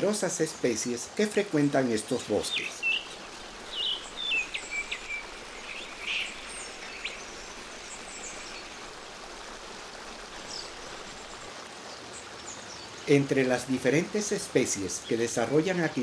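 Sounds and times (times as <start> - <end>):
stream water rushing: 0.0 - 16.0
bird chirps: 2.4 - 8.7.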